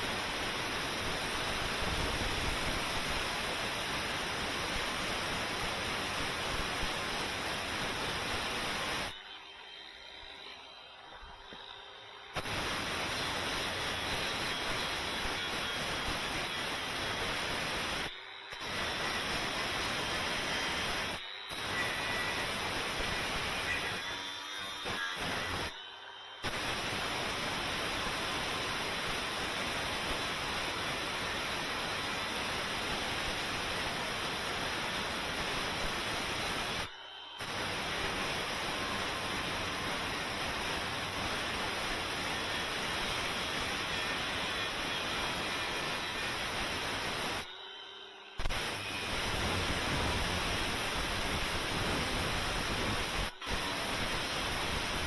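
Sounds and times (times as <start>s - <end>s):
compressed-air tool hissing: 12.4s - 16.4s.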